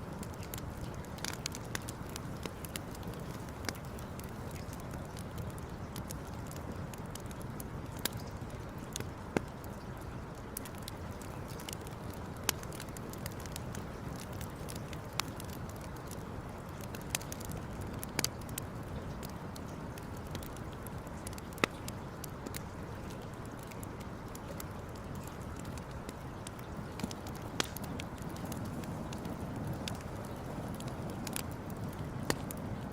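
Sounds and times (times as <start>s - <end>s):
campfire crackling and popping: 0.0s - 32.9s.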